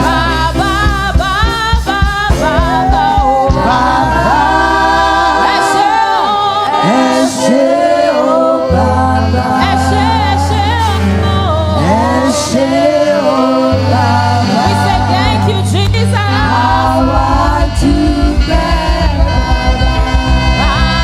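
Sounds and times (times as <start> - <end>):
pulsing beat: 0.0 - 6.3, 13.8 - 21.0
low bass notes: 0.0 - 21.0
people singing worship songs: 0.0 - 21.0.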